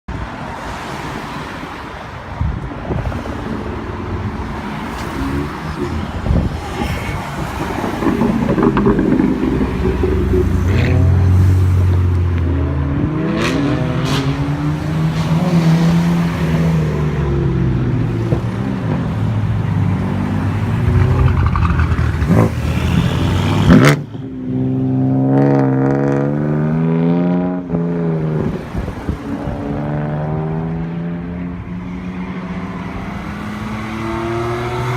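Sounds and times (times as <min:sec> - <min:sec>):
car engines revving: 0:00.3 - 0:34.9
exhaust cracks: 0:07.2 - 0:11.3.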